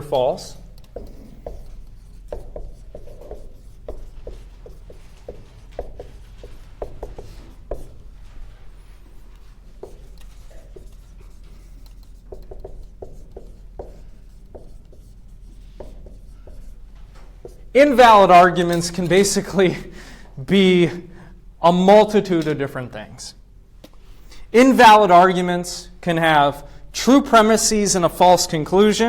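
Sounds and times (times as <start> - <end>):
writing taps and scratches on board: 0.6 - 8.4, 9.1 - 17.7.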